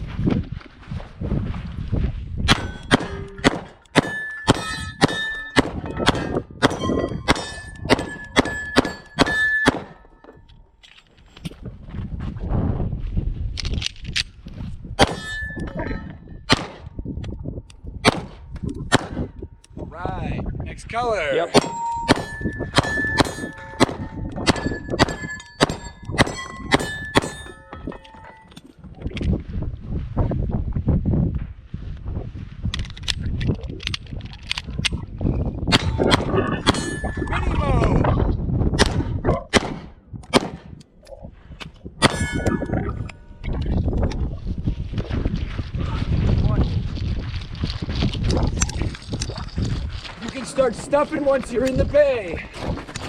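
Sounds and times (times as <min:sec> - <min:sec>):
shots ringing steel targets: 0:02.5 - 0:10.4, 0:15.0 - 0:17.0, 0:18.0 - 0:19.3, 0:21.4 - 0:28.5, 0:35.7 - 0:38.0, 0:38.8 - 0:40.8, 0:42.0 - 0:43.0
rapid gunshots: 0:38.8 - 0:40.8.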